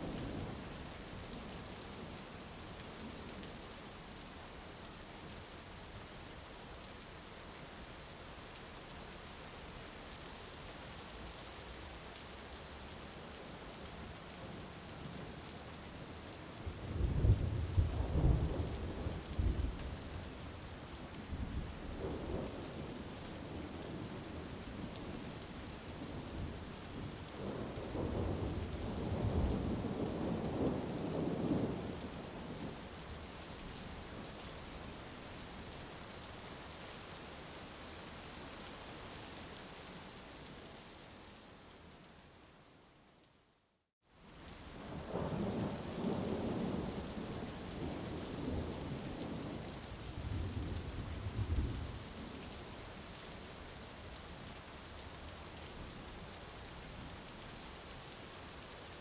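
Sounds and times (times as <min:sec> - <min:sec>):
heavy rain falling: 0:00.0 - 0:42.4, 0:44.2 - 0:59.0
heavy rain hissing: 0:44.3 - 0:56.7.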